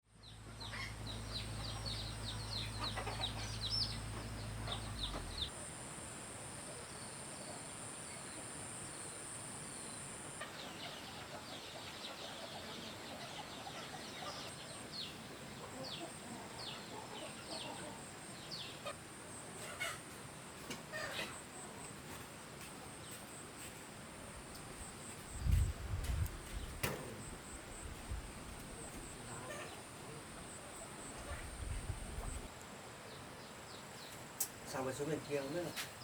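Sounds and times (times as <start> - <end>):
chicks peeping chirps: 0.6 - 5.5, 10.4 - 19.0, 28.7 - 32.5.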